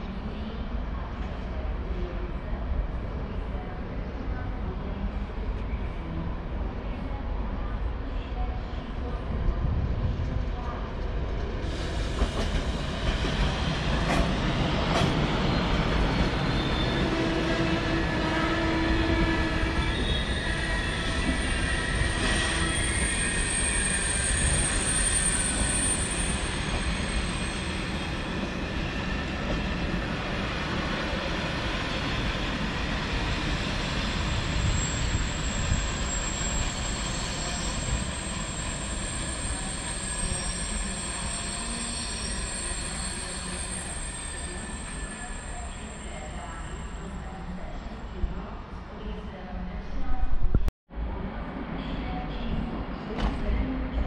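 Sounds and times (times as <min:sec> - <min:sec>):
train rumbling along track: 0:00.0 - 0:48.9
wheels squealing on rails: 0:11.6 - 0:30.4, 0:31.3 - 0:47.5.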